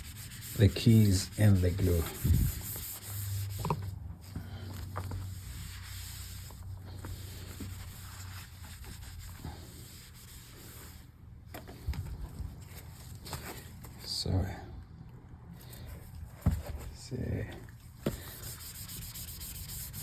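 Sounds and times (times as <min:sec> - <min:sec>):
cloth scrubbing laptop case: 0:00.0 - 0:04.0, 0:04.8 - 0:11.0, 0:18.1 - 0:20.0.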